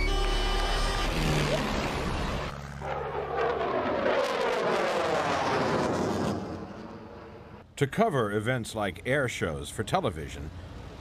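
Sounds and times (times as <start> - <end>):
music: 0.0 - 1.4
aircraft passing close by: 0.1 - 7.6.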